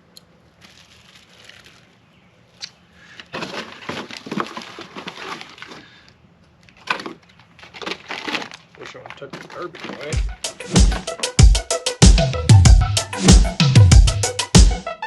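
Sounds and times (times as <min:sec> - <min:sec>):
packaging crumpling: 0:00.5 - 0:02.0, 0:03.3 - 0:06.0, 0:06.7 - 0:10.4.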